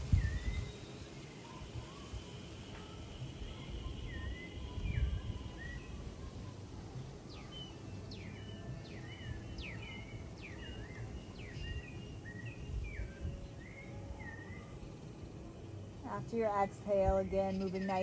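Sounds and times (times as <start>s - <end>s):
bird whistles sliding down: 0.0s - 3.0s
low ambient rumble: 0.0s - 18.0s.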